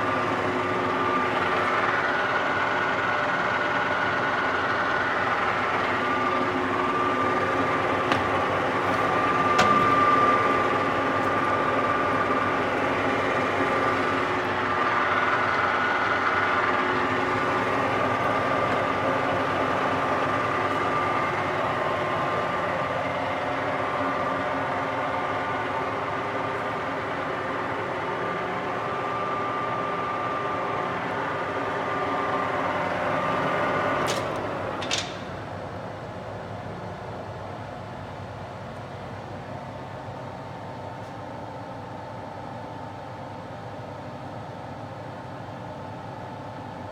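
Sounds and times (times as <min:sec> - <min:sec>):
lathe mechanical whine: 0:00.0 - 0:36.6.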